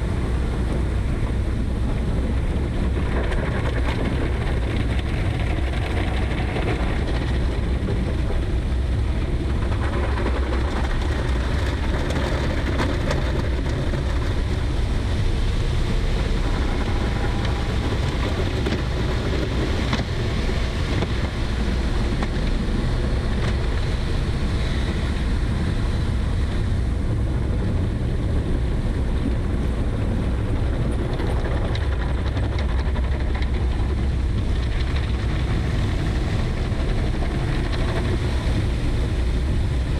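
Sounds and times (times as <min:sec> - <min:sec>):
vehicle engine and road rumble: 0:00.0 - 0:39.9
wind noise: 0:00.0 - 0:39.9.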